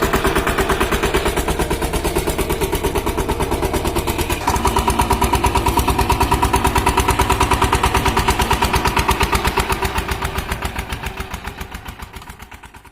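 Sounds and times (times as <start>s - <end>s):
power tiller engine running: 0.0s - 12.9s.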